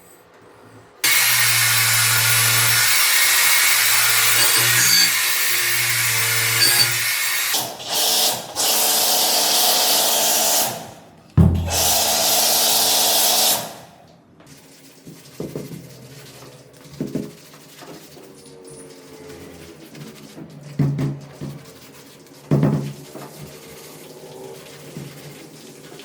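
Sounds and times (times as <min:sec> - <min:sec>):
power tool running: 0:01.0 - 0:10.8, 0:11.5 - 0:13.7
thump: 0:11.4 - 0:12.0.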